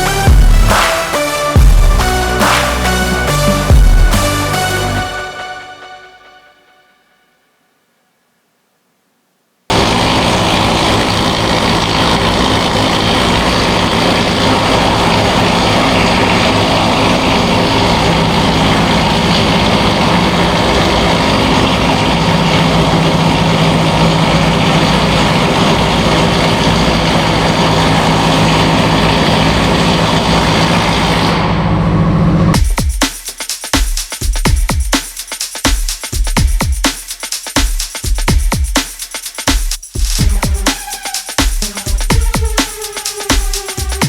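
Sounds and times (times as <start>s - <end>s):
loud machinery noise: 9.7s - 32.6s, 40.0s - 44.0s.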